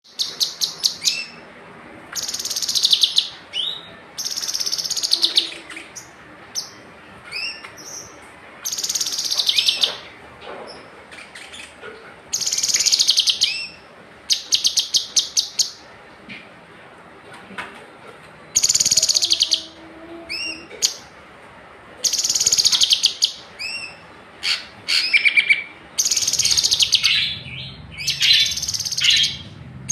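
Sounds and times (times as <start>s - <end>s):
songbird trilling: 2.2s - 8.1s, 8.7s - 10.0s, 18.6s - 21.0s, 22.1s - 29.5s.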